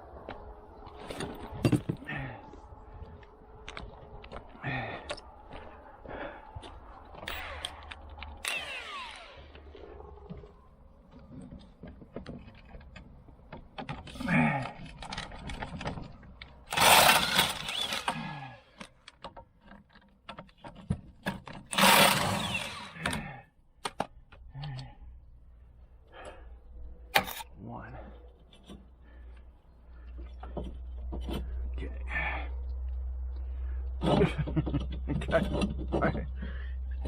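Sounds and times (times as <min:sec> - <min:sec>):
power tool bursts: 0:08.4 - 0:09.5, 0:16.7 - 0:18.4, 0:21.7 - 0:23.2.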